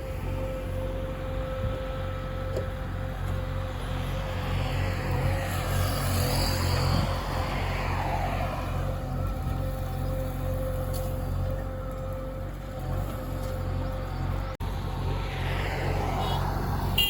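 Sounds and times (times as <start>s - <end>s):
vehicle engine running: 0.0s - 16.8s.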